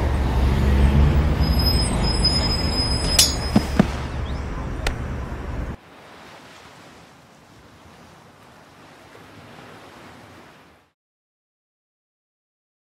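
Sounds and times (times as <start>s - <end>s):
ocean surf rushing: 3.0s - 11.0s.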